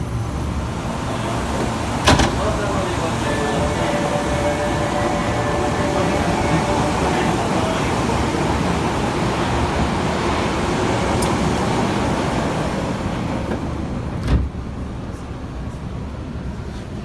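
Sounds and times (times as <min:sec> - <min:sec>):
train wheels rumbling on rails: 0:00.0 - 0:17.0
train thump: 0:01.3 - 0:10.4, 0:13.2 - 0:14.6.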